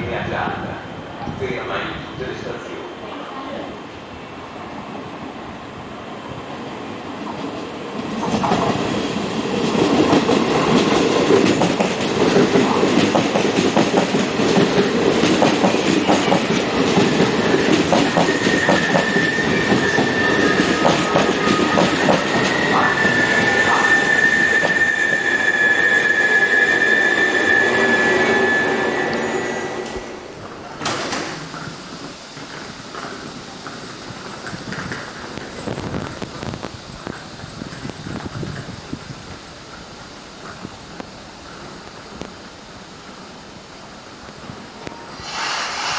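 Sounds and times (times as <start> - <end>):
train wheels clicking over rails: 7.2 - 23.6, 30.8 - 42.5, 45.1 - 45.9
high brake squeal: 18.3 - 30.1, 44.9 - 45.9.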